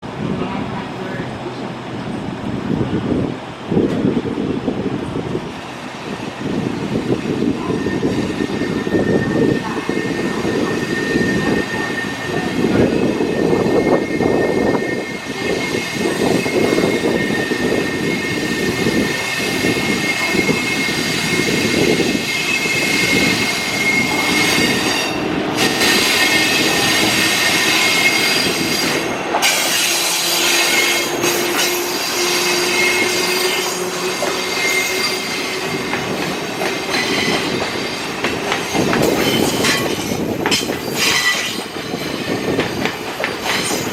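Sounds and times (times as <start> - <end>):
freight train rumbling clatter: 0.0 - 43.9
train wheels squealing: 6.0 - 43.9.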